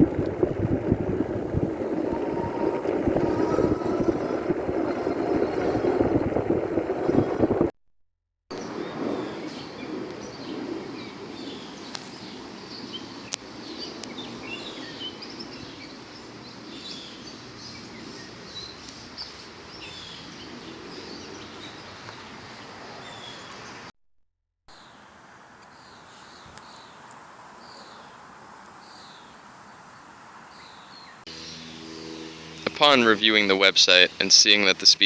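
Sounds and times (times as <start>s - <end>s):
small birds chirping: 24.7s - 28.2s.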